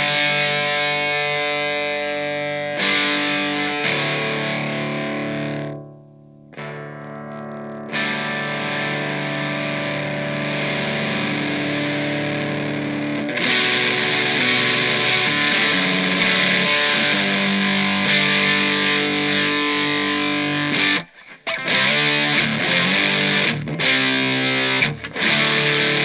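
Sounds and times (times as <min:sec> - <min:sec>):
overdriven electric guitar chords: 0:00.0 - 0:26.0.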